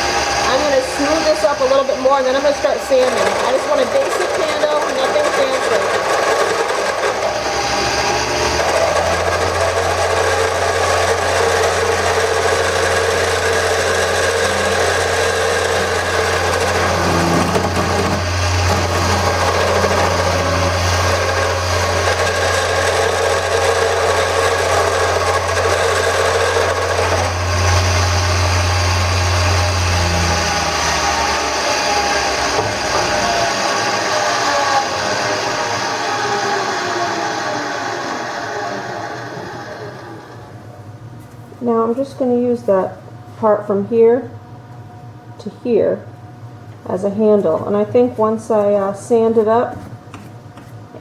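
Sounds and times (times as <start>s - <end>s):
chisel scraping spinning wood: 0.0s - 37.8s
lathe motor: 0.0s - 41.0s
deep steady hum: 0.0s - 49.9s.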